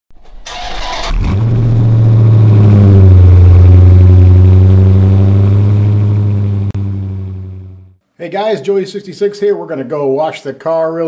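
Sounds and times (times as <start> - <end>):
starter motor cranking: 0.3 - 1.5
car engine fast idle: 0.4 - 2.0.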